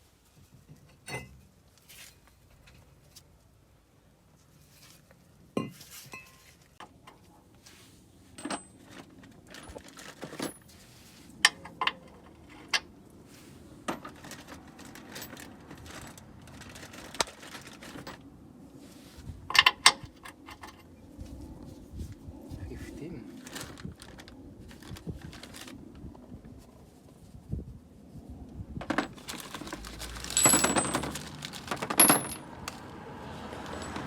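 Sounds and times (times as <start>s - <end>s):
metal hand tools clinking: 30.0s - 32.8s.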